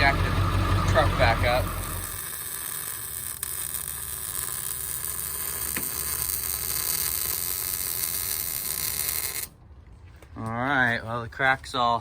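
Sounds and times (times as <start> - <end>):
welder arc sizzling: 0.0 - 9.6
low steady hum: 0.0 - 12.0.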